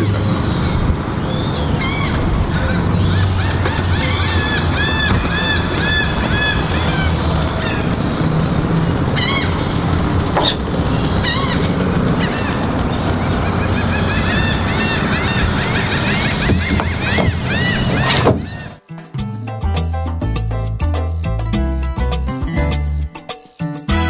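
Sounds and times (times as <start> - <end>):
background wash: 0.0 - 18.8
birds calling: 0.0 - 19.1.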